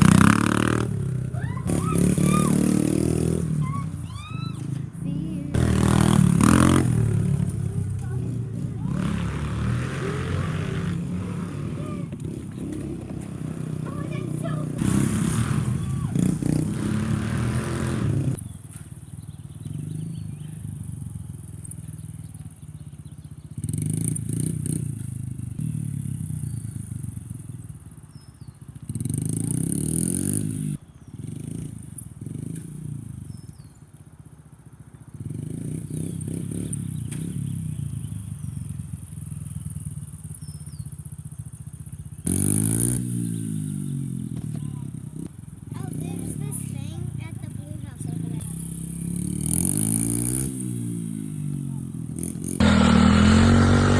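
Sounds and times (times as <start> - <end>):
off-road vehicle engine revving: 0.0 - 18.6, 19.6 - 27.5, 28.9 - 33.7, 35.2 - 41.0, 42.0 - 53.9.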